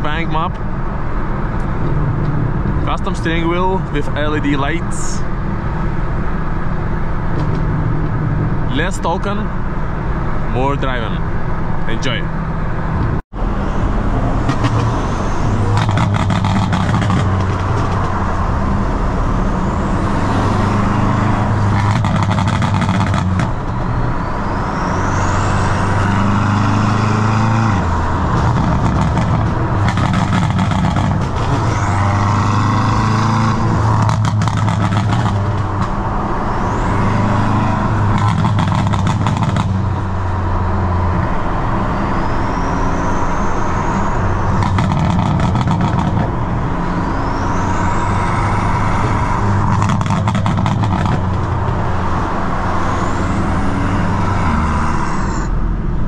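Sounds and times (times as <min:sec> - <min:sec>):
car engine revving hard: 0:24.8 - 0:35.8.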